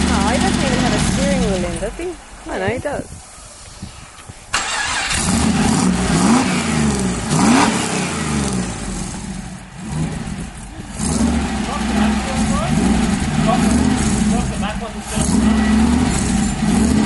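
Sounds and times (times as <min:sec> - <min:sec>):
engine starting and revving: 0:04.5 - 0:17.0.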